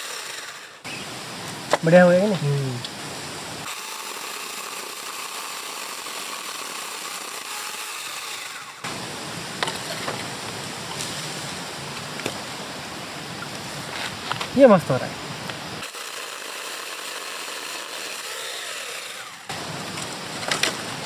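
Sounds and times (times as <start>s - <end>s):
battery saw cutting wood: 0.0s - 10.5s, 15.5s - 21.0s.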